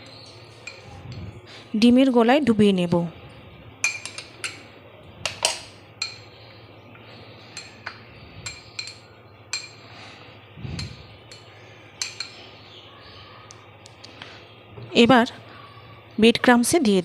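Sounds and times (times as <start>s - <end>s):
kitchenware clinking: 0.0s - 1.5s, 3.8s - 6.4s, 7.4s - 10.0s, 10.7s - 12.6s.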